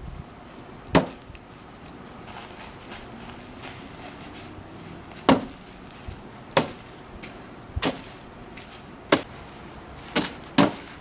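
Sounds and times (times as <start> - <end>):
bean bags thudding on board: 0.9 - 1.3, 5.2 - 5.6, 6.5 - 6.9, 7.8 - 9.3, 10.1 - 11.0.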